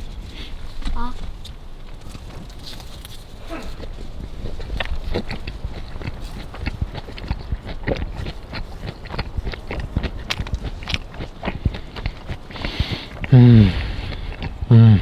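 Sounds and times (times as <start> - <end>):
person chewing food: 1.9 - 15.0.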